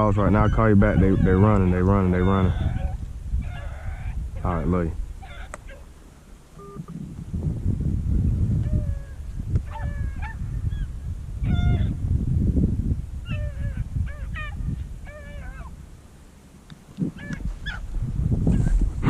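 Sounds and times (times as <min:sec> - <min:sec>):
dogs baying: 0:00.3 - 0:04.2, 0:05.2 - 0:05.9, 0:08.6 - 0:10.4, 0:17.2 - 0:17.8.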